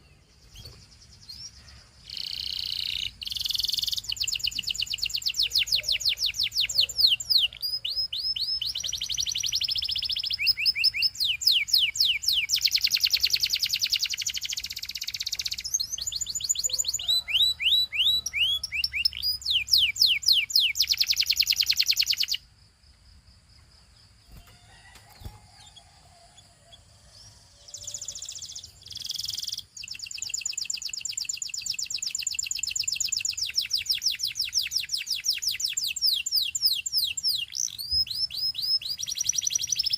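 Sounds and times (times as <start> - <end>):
canary singing trills: 0.0 - 22.5, 24.3 - 39.9.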